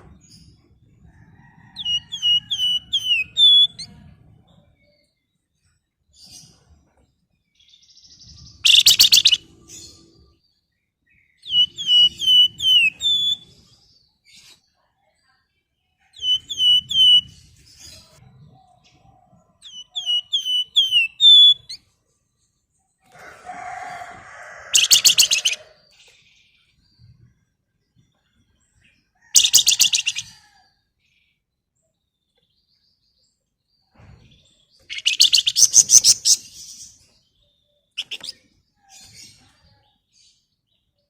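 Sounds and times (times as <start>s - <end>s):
songbird whistled notes: 1.8s - 3.9s, 11.4s - 13.4s, 16.2s - 17.3s, 19.7s - 21.8s.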